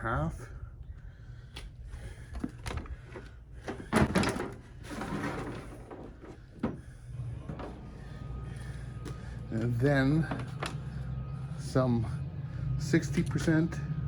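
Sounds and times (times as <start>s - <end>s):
scrap metal clattering: 3.7s - 8.3s.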